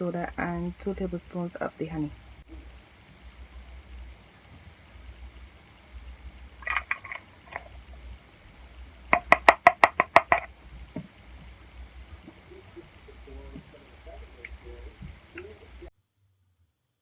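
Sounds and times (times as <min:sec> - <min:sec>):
spoon tapping on rim: 0:09.1 - 0:10.5.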